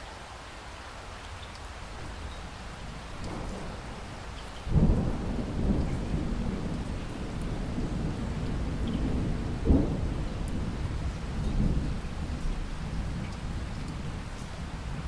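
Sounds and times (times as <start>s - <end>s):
steady rain: 0.0s - 15.0s
thunder rumbling: 3.0s - 15.0s
sharp thunderclap: 3.2s - 13.6s.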